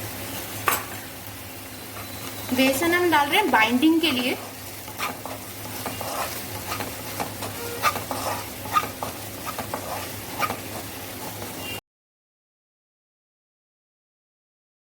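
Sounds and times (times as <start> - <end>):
food sizzling in a pan: 0.0 - 11.8
spoon scraping a pan: 3.4 - 11.8.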